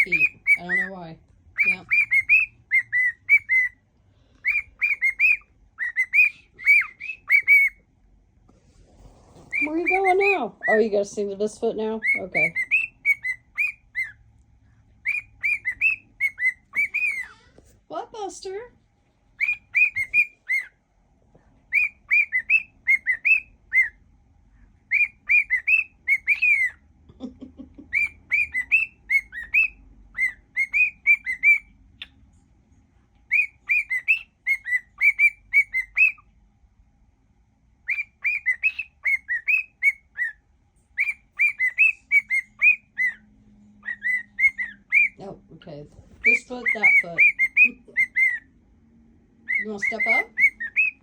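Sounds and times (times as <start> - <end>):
cockatiel whistling: 0.0 - 1.0, 1.6 - 3.8, 4.4 - 7.8, 9.4 - 10.9, 12.0 - 14.2, 15.0 - 17.4, 19.4 - 20.8, 21.7 - 24.0, 24.9 - 26.8, 27.8 - 32.2, 33.3 - 36.3, 37.8 - 45.2, 46.1 - 48.5, 49.4 - 51.0.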